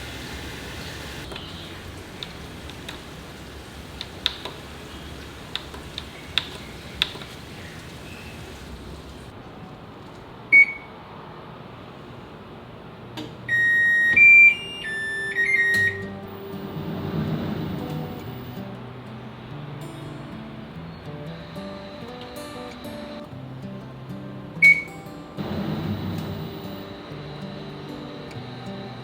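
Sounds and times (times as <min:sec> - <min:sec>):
single beep: 0:10.6 - 0:10.9, 0:13.5 - 0:16.2, 0:24.6 - 0:25.0
electronic beep tune: 0:13.5 - 0:16.2.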